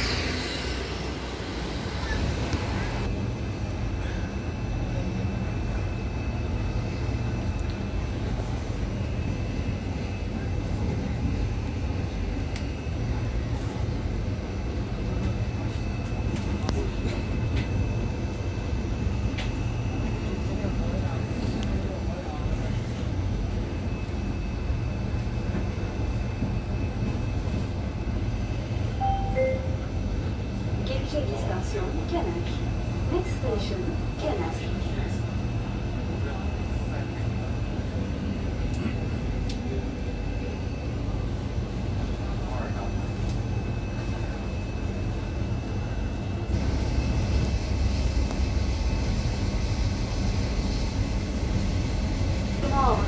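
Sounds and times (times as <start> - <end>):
train interior rumble: 0.0 - 53.0
faint high tone: 29.0 - 29.9.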